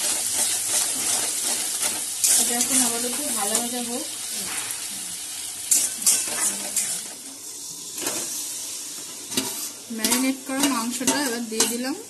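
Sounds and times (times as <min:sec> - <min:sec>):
spatula scraping a metal wok: 0:00.0 - 0:03.8, 0:05.7 - 0:07.2, 0:07.9 - 0:11.9
masala sizzling in hot oil: 0:00.0 - 0:12.0.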